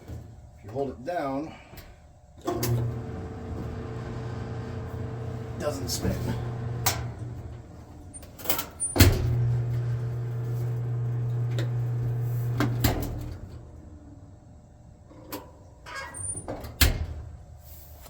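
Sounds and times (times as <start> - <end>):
dryer motor humming: 2.4 - 14.0.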